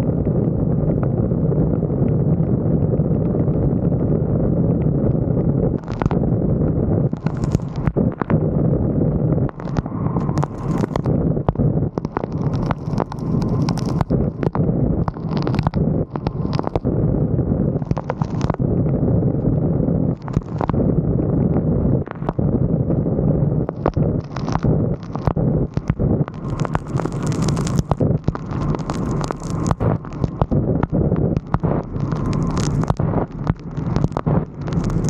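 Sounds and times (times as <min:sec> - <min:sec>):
wind buffeting microphone: 0:00.0 - 0:35.0
raindrops tapping camera housing: 0:05.5 - 0:06.3, 0:07.1 - 0:08.4, 0:09.3 - 0:16.9, 0:17.8 - 0:18.6, 0:20.1 - 0:20.8, 0:22.1 - 0:22.4, 0:23.6 - 0:35.0.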